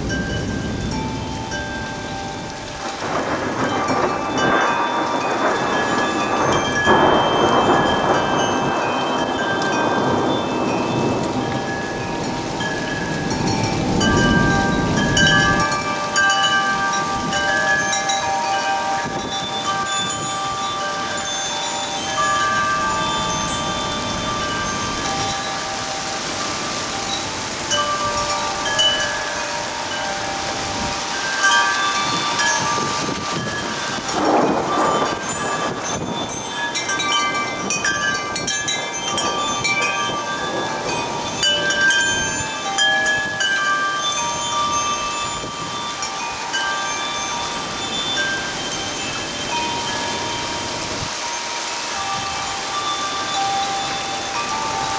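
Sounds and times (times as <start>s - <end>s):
rain hiss: 0.0s - 54.9s
wind chimes ringing: 0.0s - 54.9s
low rumble of thunder: 3.0s - 12.0s, 34.1s - 35.9s.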